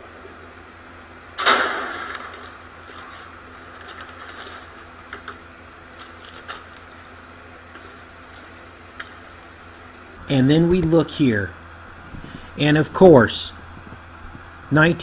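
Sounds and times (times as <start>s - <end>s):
loud crash: 1.4s - 2.7s
faint clicks and rattles: 1.4s - 10.2s.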